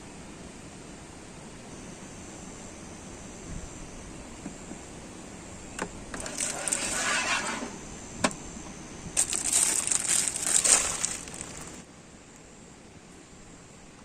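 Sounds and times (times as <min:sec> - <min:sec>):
rustling and crunching: 0:06.2 - 0:07.8, 0:09.2 - 0:11.8.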